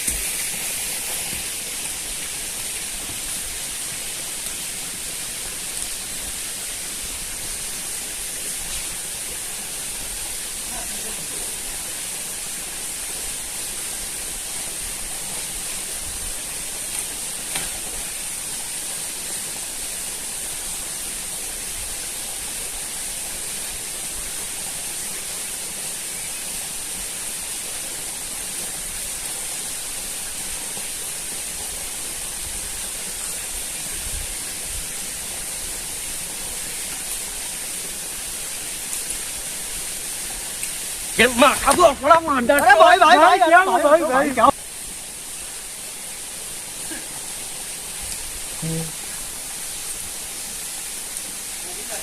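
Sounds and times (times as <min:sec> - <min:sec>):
high-pitched hiss: 0:00.0 - 0:18.8, 0:36.6 - 0:52.0.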